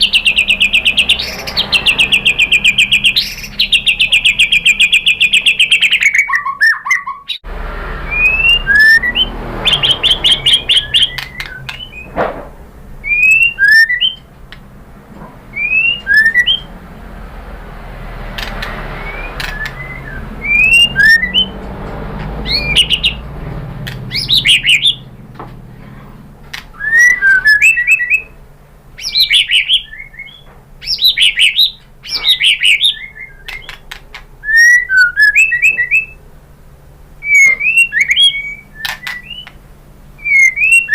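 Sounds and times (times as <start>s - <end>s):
bird singing whistled notes: 0.0s - 12.2s, 13.0s - 14.3s, 15.5s - 16.7s, 18.8s - 21.6s, 22.4s - 23.3s, 24.1s - 25.1s, 26.7s - 28.4s, 29.0s - 36.2s, 37.2s - 39.6s, 40.2s - 40.9s.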